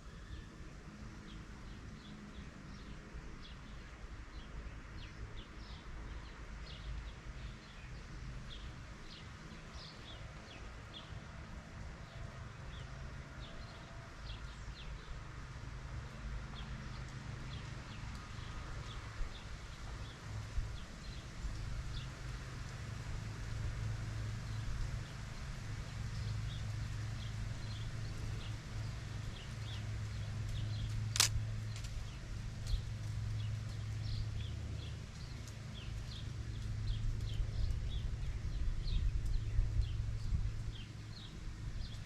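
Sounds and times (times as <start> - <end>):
low outdoor rumble: 0.0 - 42.0
small birds chirping: 24.4 - 42.0.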